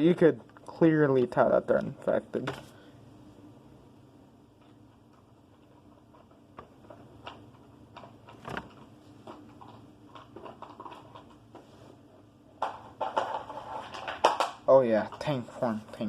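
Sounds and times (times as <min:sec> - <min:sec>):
plastic figures clicking and tapping: 0:12.6 - 0:15.3.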